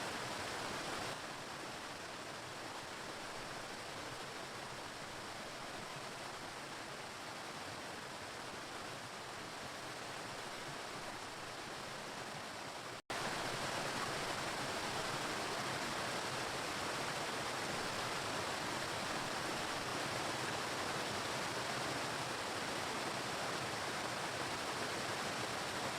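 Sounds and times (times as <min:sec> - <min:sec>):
waterfall rushing: 0:13.1 - 0:25.9.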